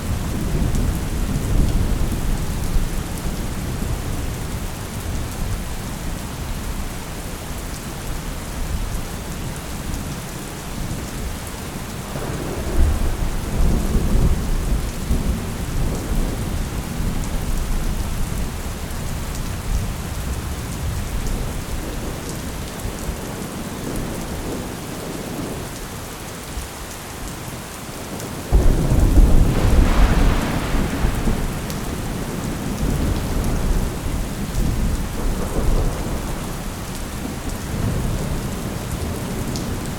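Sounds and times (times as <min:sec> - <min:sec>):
steady rain: 0:00.0 - 0:39.9
thunder rolling: 0:28.5 - 0:36.9.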